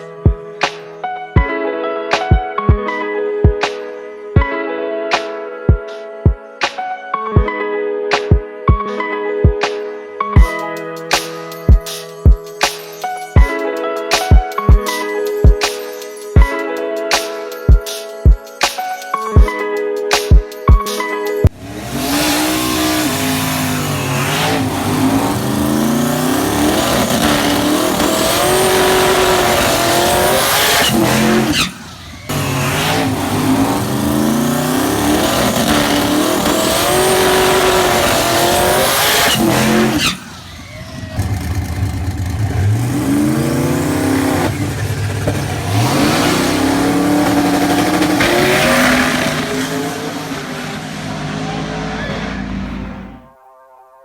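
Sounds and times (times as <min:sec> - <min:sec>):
drag car engine accelerating: 0:21.5 - 0:53.3.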